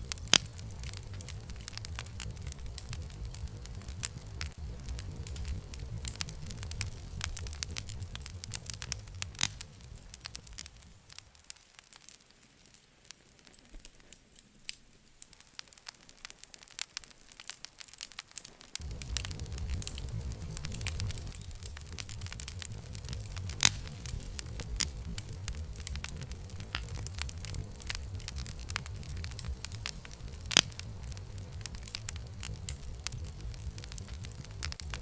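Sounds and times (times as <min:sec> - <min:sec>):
campfire crackling and popping: 0:00.0 - 0:35.0
low fire rumble: 0:00.0 - 0:35.0.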